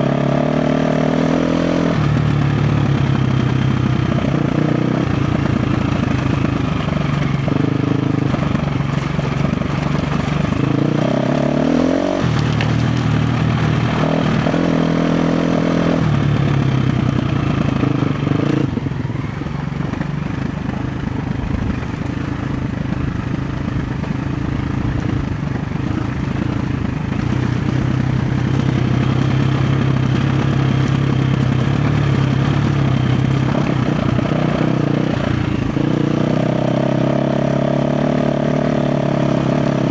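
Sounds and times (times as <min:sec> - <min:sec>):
dirt bike engine revving: 0:00.0 - 0:19.0, 0:19.8 - 0:39.9.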